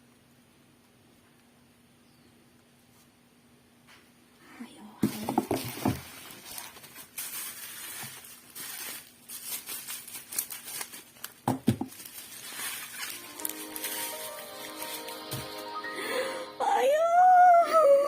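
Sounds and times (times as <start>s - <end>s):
plastic packaging crinkling: 5.0s - 15.8s.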